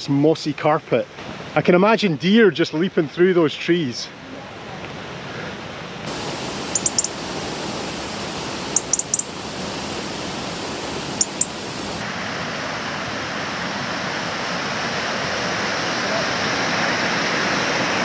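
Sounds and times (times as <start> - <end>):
waterfall rushing: 6.1 - 12.1
brief high chirps: 6.8 - 7.1.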